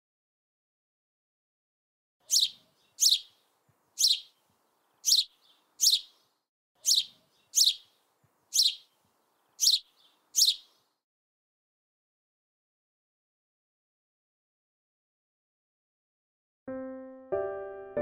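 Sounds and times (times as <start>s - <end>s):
bird chirping: 2.2s - 11.0s.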